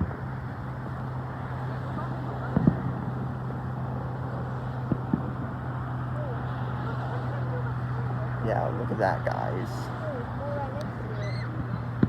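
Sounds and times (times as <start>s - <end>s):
distant fireworks thuds: 2.4s - 3.8s, 4.8s - 6.1s.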